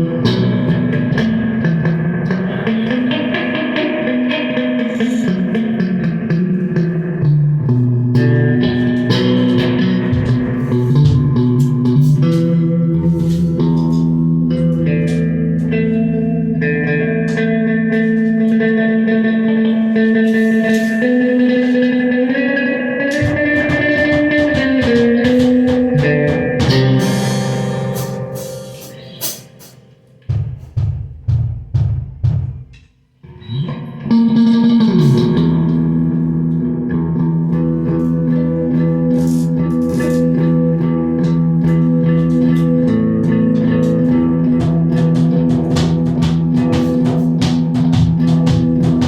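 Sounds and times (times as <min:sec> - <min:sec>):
ringing guitar notes: 0:00.0 - 0:49.0
drum strokes: 0:08.6 - 0:14.1, 0:23.1 - 0:32.9, 0:41.8 - 0:49.0
cymbal crash: 0:26.9 - 0:30.0.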